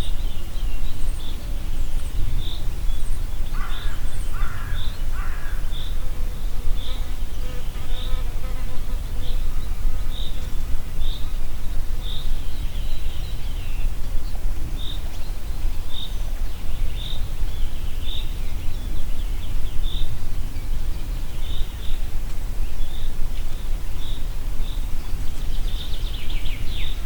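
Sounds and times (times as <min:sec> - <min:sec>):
wind rumbling through forest: 0:00.0 - 0:27.0.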